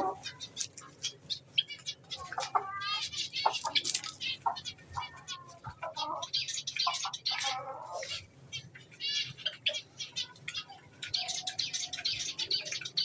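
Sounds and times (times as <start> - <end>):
finches chirping and beeping: 6.2 - 13.0.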